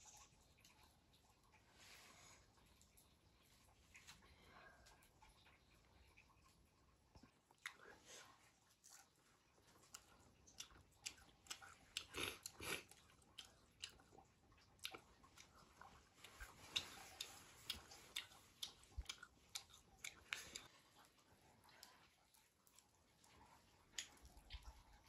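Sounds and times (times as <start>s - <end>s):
person chewing food: 8.6s - 25.0s.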